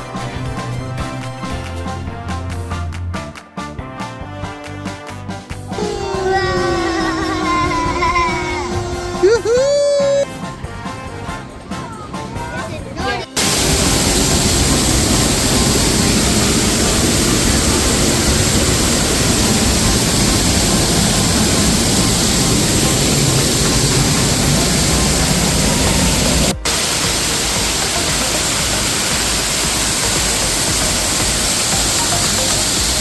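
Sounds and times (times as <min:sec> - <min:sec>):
rushing falling water: 0:06.1 - 0:10.2, 0:13.4 - 0:33.0.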